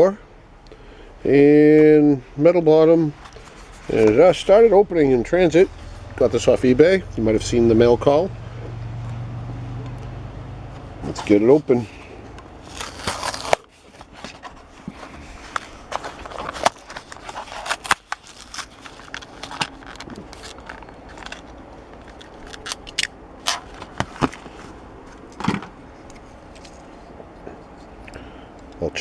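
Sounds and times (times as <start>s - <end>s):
plastic packaging crackling: 11.1s - 26.7s.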